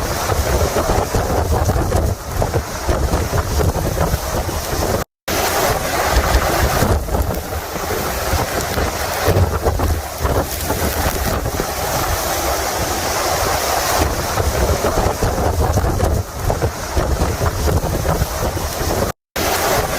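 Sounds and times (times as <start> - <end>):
rain hissing: 0.0 - 19.9
wind buffeting microphone: 0.0 - 19.9.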